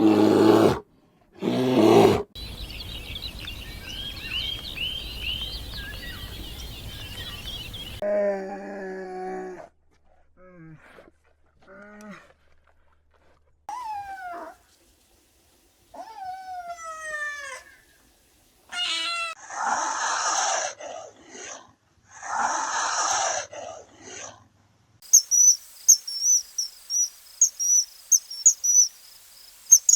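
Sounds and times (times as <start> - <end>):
crickets chirping: 2.4 - 8.0, 25.0 - 29.9.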